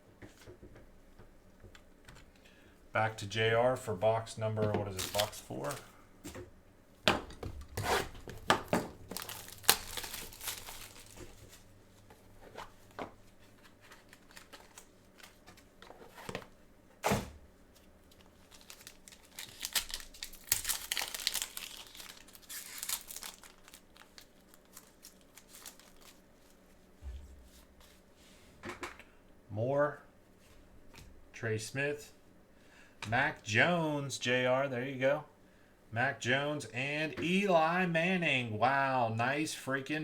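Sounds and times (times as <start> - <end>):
plastic wrapping tearing and crinkling: 4.9 - 5.8, 7.8 - 11.6, 13.9 - 15.5, 18.0 - 26.6.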